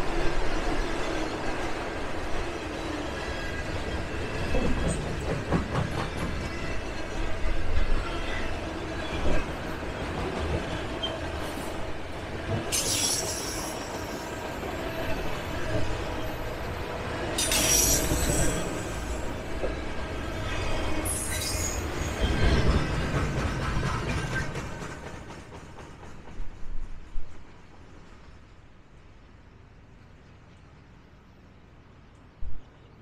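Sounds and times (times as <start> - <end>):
low train rumble: 0.0 - 33.0
train wheels squealing: 2.8 - 9.5, 12.7 - 16.7, 17.4 - 19.4, 20.4 - 26.2.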